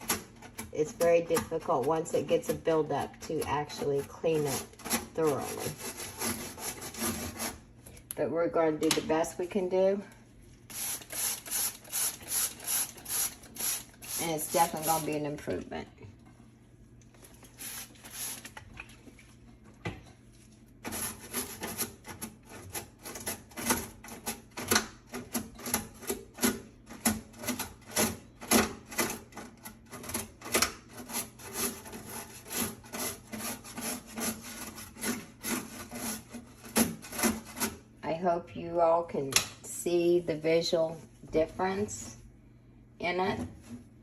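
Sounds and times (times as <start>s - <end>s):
brush scrubbing inside microwave: 0.0s - 7.8s, 10.6s - 15.6s, 20.2s - 37.9s.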